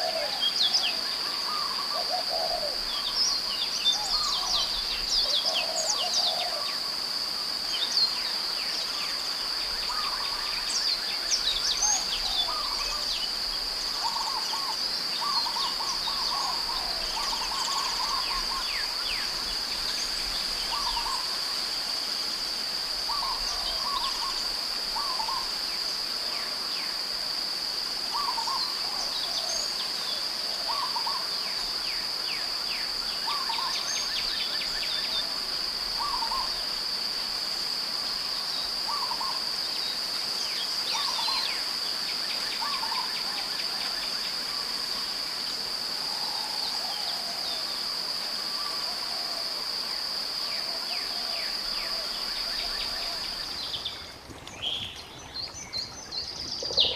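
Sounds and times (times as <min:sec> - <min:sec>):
lower bird calls: 0:50.8 - 0:56.9
birds chirping: 0:53.0 - 0:56.9.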